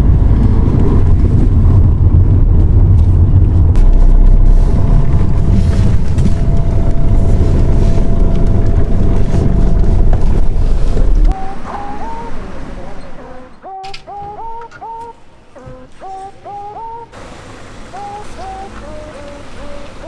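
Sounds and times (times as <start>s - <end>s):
loud low motor rumble: 0.0s - 13.6s
steady whine: 0.0s - 20.0s.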